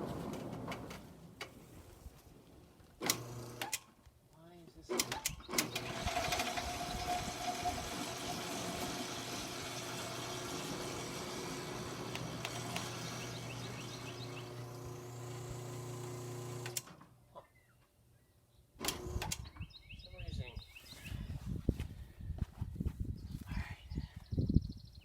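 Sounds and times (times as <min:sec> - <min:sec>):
motor running: 0:03.0 - 0:03.7, 0:05.6 - 0:16.9.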